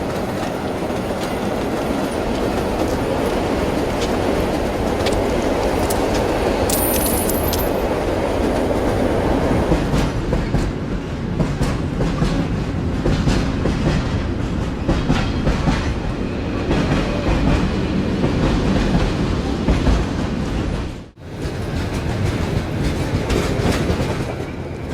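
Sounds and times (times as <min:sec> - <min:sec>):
train rumbling on track: 0:00.0 - 0:24.9.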